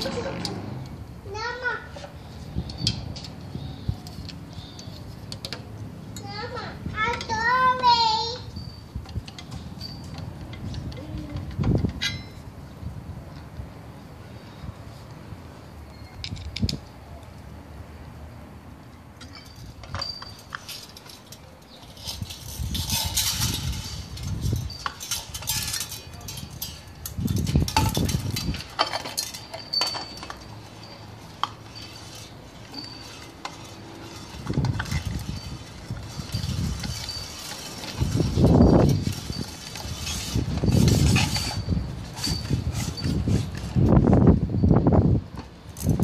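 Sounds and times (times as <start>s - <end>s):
metal parts clinking: 19.2s - 43.9s, 45.8s - 46.0s
rustling and handling noise: 19.2s - 44.4s.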